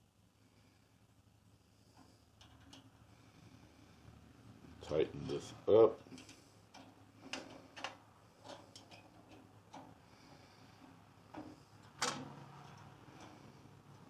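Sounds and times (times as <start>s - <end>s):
light metal clicks and taps: 6.0s - 10.0s.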